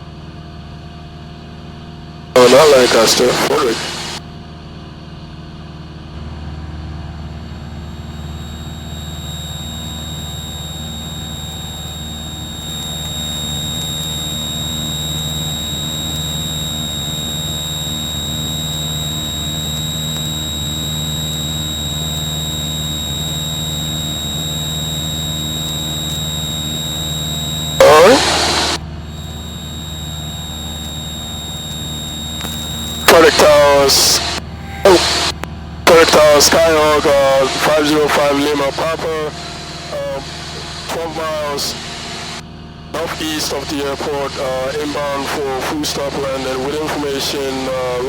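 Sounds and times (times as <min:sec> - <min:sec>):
airplane engine and propeller droning: 0:02.4 - 0:04.2, 0:07.6 - 0:42.4
thin high whine: 0:02.4 - 0:04.2, 0:07.5 - 0:48.0.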